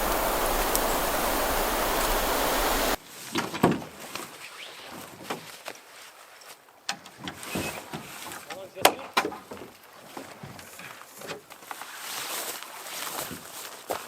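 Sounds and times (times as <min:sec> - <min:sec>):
waves lapping: 0:00.0 - 0:03.0
wind on microphone: 0:00.0 - 0:03.0.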